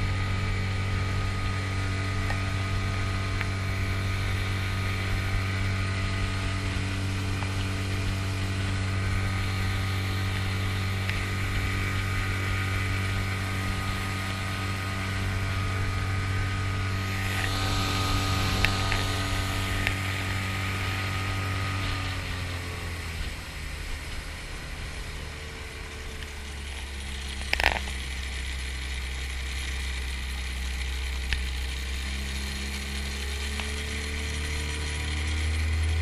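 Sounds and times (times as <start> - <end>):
outboard motor humming: 0.0 - 36.0.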